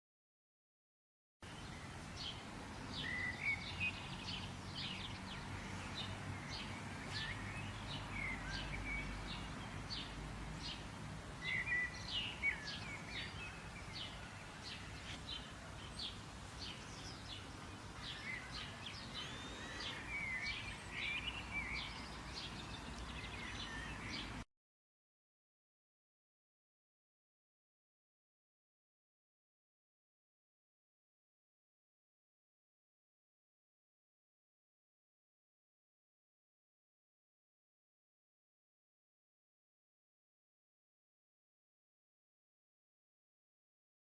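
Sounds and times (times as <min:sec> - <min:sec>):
birds chirping: 0:01.4 - 0:24.4.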